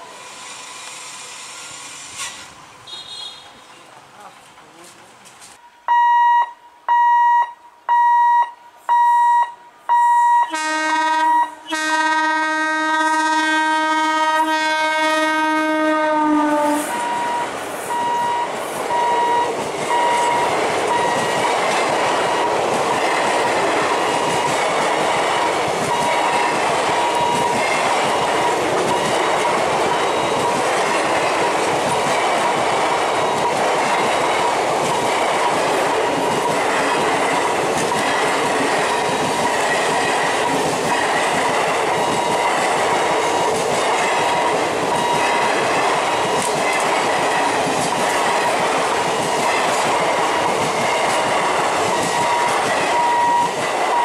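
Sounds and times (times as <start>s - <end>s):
train rumble and wheel clatter: 0.0s - 5.6s, 10.5s - 54.0s
train horn blast: 10.5s - 17.2s
electronic beeps: 17.0s - 20.4s.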